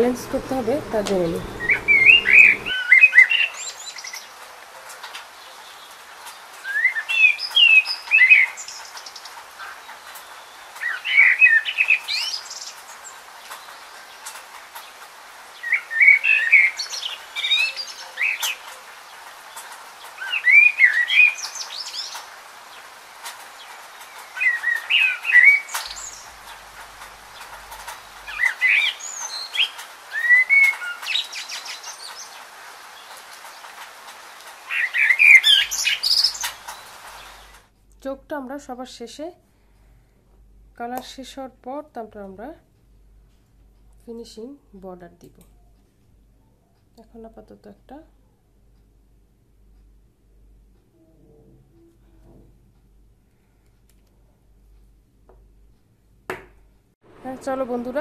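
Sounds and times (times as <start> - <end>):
bird twittering calls: 0.0 - 4.4, 5.4 - 33.8, 34.5 - 37.6
faint steady hiss: 0.0 - 58.0.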